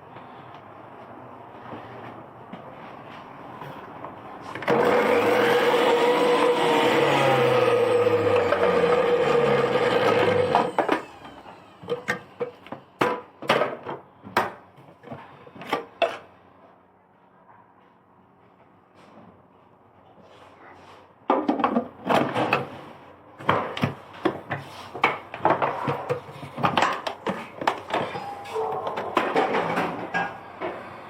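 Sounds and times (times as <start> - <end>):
juicer motor whining: 4.5 - 12.4.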